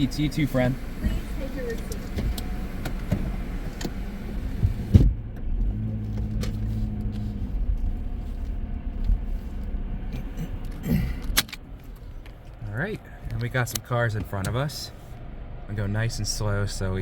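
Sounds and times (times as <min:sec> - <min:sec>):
car engine idling: 0:00.0 - 0:17.0
thump: 0:04.6 - 0:05.2.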